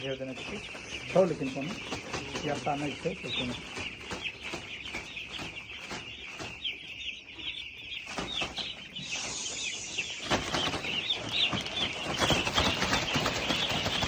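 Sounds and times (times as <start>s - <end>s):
chickens peeping: 0.0s - 14.0s
rustling noise: 8.0s - 14.0s.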